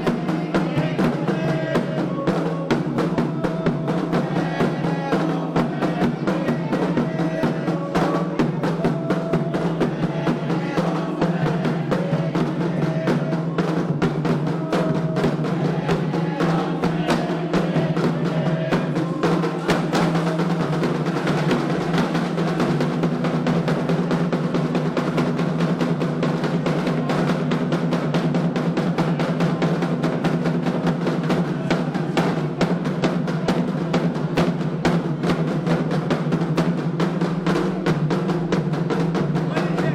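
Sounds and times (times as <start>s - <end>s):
hand drums fast rhythm: 0.0s - 39.9s.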